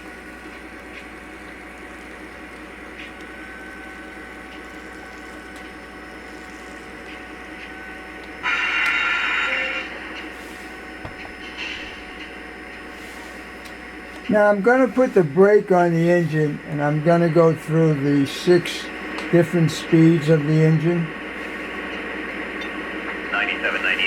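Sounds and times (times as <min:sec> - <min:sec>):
model locomotive diesel rumble: 0:07.7 - 0:24.0
locomotive horn blast: 0:08.4 - 0:10.0.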